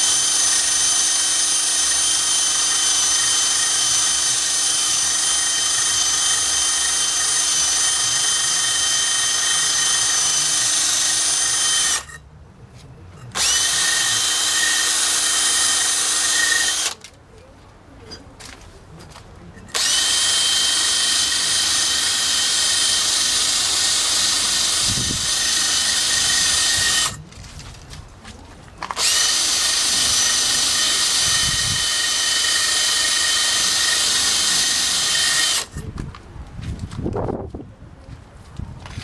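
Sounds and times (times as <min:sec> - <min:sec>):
power drill whining: 0:00.0 - 0:12.2, 0:13.2 - 0:17.0, 0:19.7 - 0:27.2, 0:28.8 - 0:35.9.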